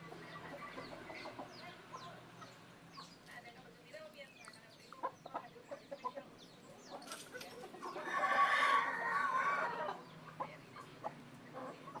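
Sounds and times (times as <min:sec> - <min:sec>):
chickens clucking: 0:00.0 - 0:03.6, 0:04.2 - 0:12.0
chicken drawn-out call: 0:07.8 - 0:10.0.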